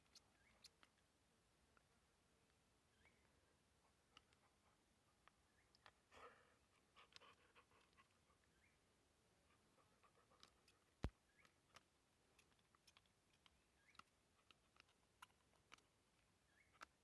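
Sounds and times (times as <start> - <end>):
faint light clicks and taps: 5.2 - 6.0, 10.0 - 17.0.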